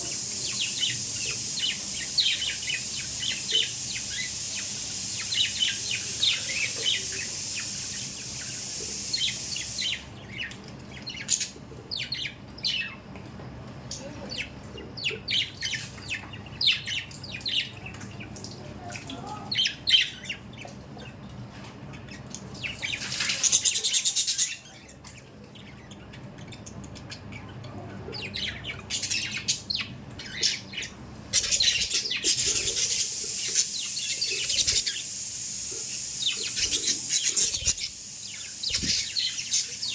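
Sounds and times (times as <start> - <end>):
steady hiss: 0.0 - 10.0, 31.6 - 39.9
budgerigars chirping and chattering: 0.0 - 13.0, 22.0 - 39.9.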